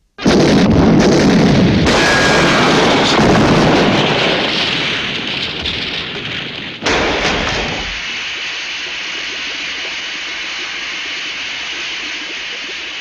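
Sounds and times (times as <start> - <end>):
sudden burst: 0.2 - 5.2
loud noisy din: 0.2 - 5.7, 6.8 - 8.0
steam rushing from a broken pipe: 1.7 - 13.0.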